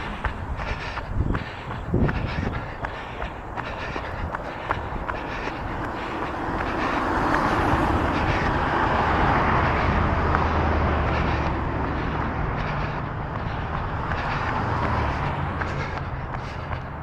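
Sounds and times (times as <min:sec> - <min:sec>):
runner's footfalls: 0:00.0 - 0:08.6, 0:10.3 - 0:17.0
vehicle driving past: 0:03.6 - 0:17.0.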